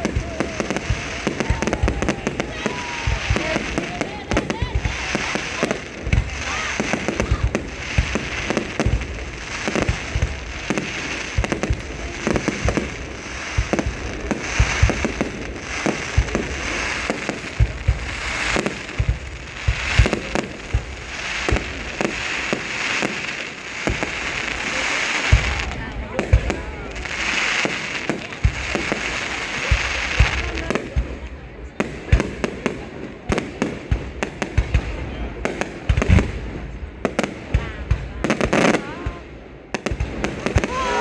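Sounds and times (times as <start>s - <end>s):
firework shells bursting: 0.0s - 29.8s
fireworks crackling: 0.0s - 41.0s.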